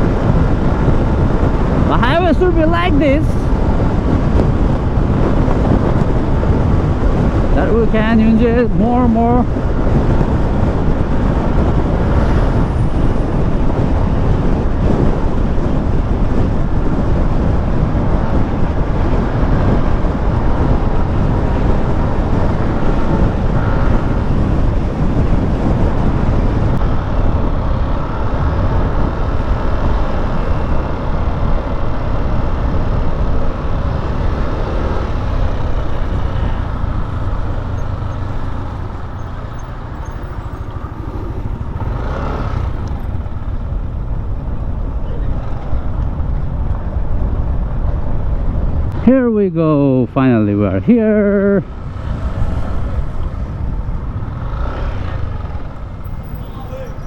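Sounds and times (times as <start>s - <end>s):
wind and road noise: 0.0s - 57.0s
scooter engine running: 17.8s - 47.6s, 51.6s - 57.0s.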